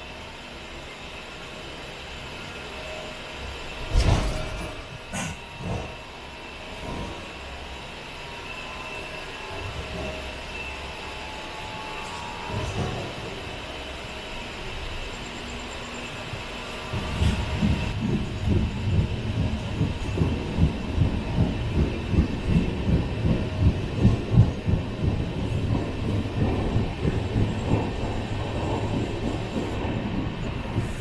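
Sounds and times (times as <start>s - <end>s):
train coach rumbling: 0.0s - 31.0s.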